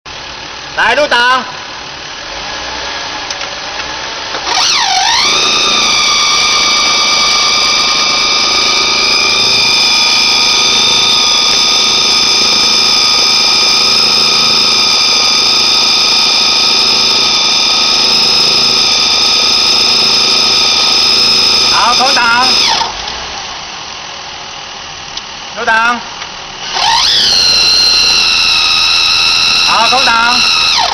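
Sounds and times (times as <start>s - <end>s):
loud high-pitched whine: 4.0s - 30.9s.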